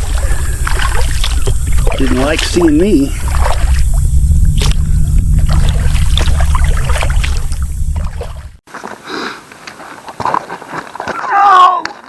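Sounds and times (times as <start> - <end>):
paddle splashing in water: 0.0 - 4.0, 5.4 - 11.3
heavy low rumble: 0.0 - 8.6
outdoor ambience: 0.0 - 12.0.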